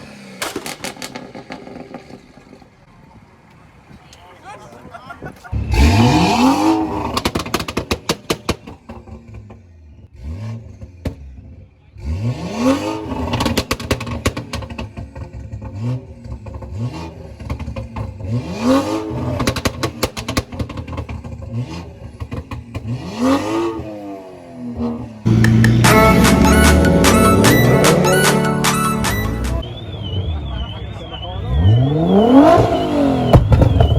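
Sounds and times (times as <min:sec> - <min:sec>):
car engine revving: 0:00.0 - 0:02.9, 0:05.5 - 0:33.9
exhaust cracks and pops: 0:00.3 - 0:02.8, 0:07.0 - 0:09.6, 0:13.3 - 0:18.4, 0:19.3 - 0:23.0, 0:33.2 - 0:33.9.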